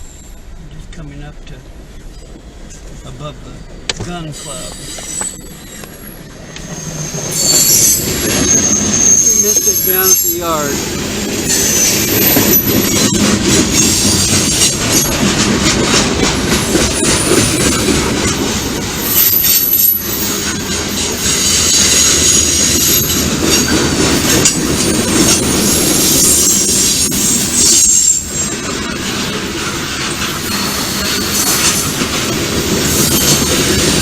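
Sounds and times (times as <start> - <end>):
freight train rumbling: 0.0 - 34.0
high-pitched wheel squeal: 4.4 - 15.1, 19.0 - 32.1.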